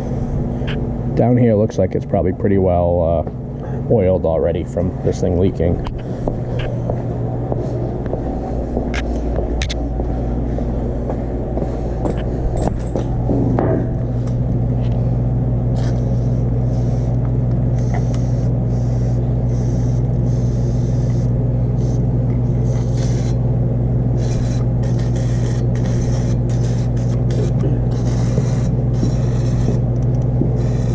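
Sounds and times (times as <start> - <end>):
low mechanical hum: 0.0 - 30.9
aerosol can spraying: 17.8 - 21.2, 24.2 - 29.8, 30.6 - 30.9.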